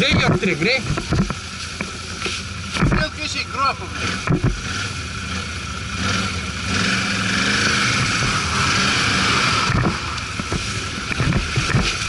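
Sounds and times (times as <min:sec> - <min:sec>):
quad bike engine running: 0:00.0 - 0:12.0
loud hissing rush: 0:06.2 - 0:12.0.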